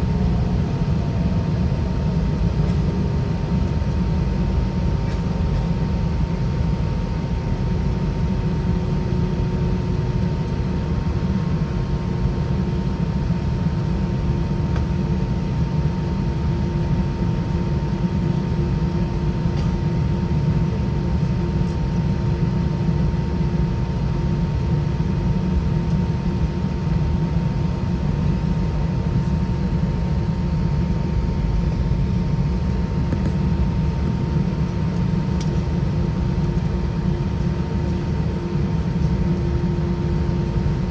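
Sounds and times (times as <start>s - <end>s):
airliner cabin rumble: 0.0s - 40.9s
high-pitched engine whine: 0.0s - 40.9s.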